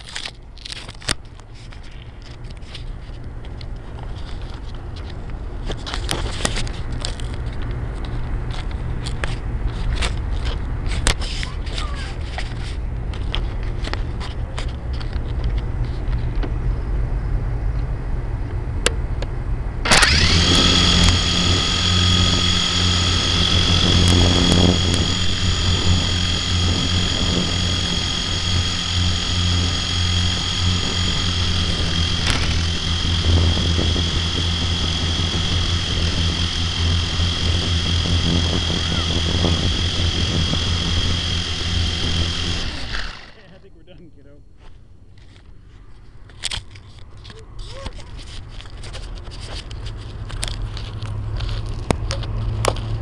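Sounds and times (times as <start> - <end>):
low hum: 12.2 - 53.0
electric motor whine: 19.8 - 43.6.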